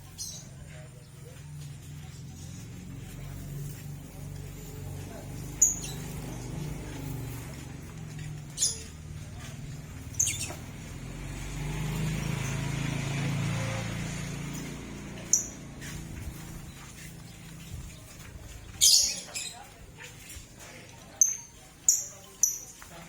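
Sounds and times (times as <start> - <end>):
lovebirds chirping: 0.0 - 11.0, 14.4 - 20.4, 21.1 - 23.0.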